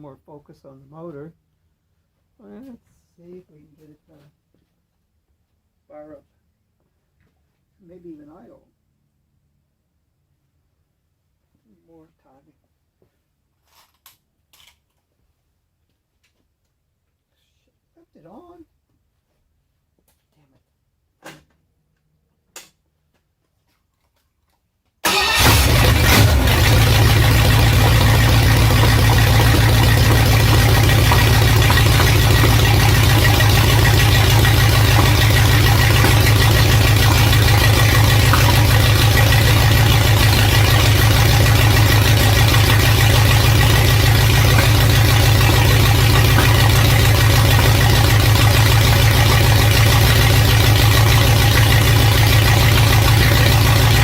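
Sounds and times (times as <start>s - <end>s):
engine idling: 25.1s - 54.0s.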